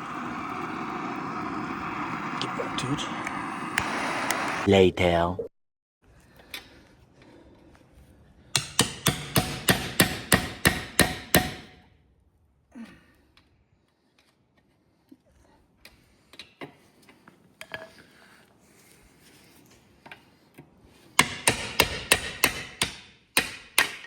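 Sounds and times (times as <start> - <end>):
hammer blows on metal: 8.6 - 11.8.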